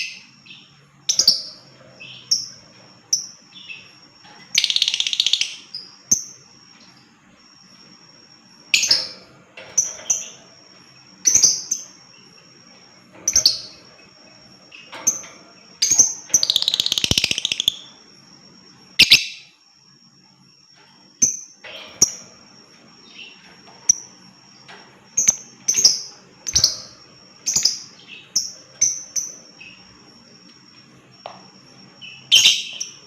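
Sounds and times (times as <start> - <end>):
bird chirping and trilling: 0.0 - 6.4, 13.2 - 18.0, 19.0 - 19.6, 25.2 - 30.0, 32.0 - 33.0.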